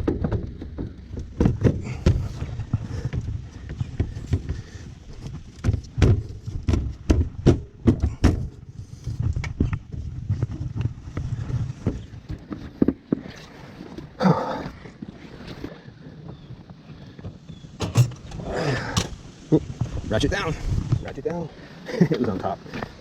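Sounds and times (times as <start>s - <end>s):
clicks and knocks of tools: 17.8s - 19.2s
loud clunk: 17.8s - 19.2s.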